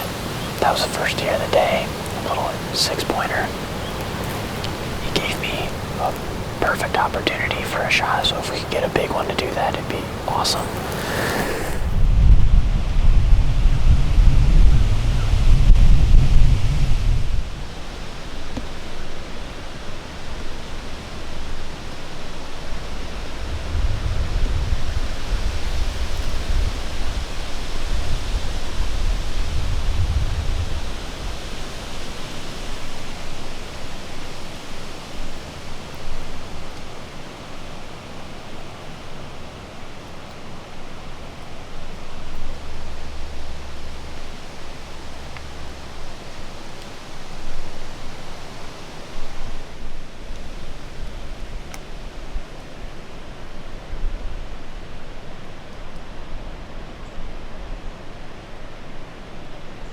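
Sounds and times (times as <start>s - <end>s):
wind rushing through trees: 0.0s - 59.9s
wind buffeting microphone: 10.0s - 17.9s, 23.0s - 33.1s.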